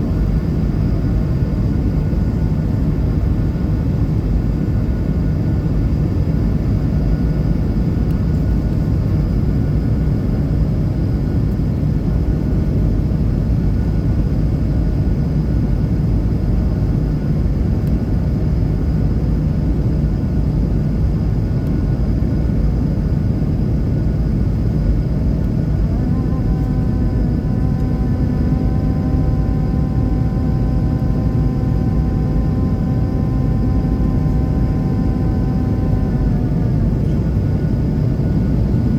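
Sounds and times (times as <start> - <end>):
aircraft taking off: 23.6 - 38.9
steady multi-pitch hum: 25.4 - 38.9.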